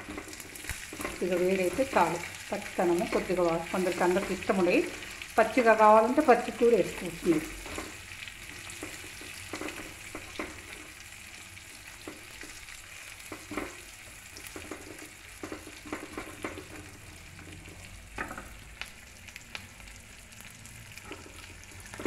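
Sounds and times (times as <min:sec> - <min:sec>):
wooden spatula scraping pan: 0:00.0 - 0:05.0, 0:06.5 - 0:11.0, 0:11.9 - 0:17.8
vegetables sizzling in oil: 0:00.0 - 0:22.0.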